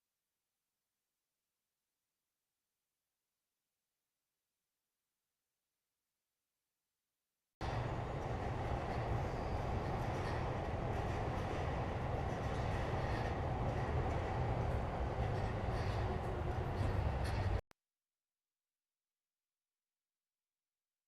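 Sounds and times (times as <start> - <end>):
faint rail clicks: 7.6 - 17.6
train rumbling on rails: 7.6 - 17.6.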